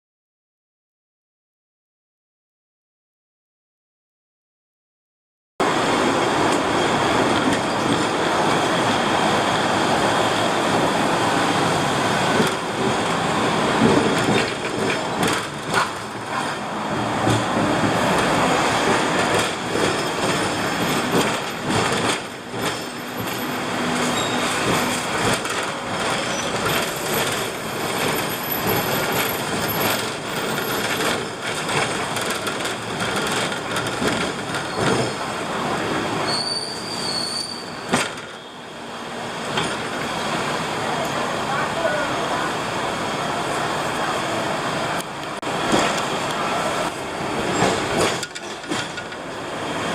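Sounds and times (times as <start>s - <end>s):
tram rolling on rails: 5.6s - 49.9s
wheels knocking and rattling: 13.7s - 16.5s, 17.2s - 24.0s, 24.6s - 35.2s, 46.9s - 49.3s.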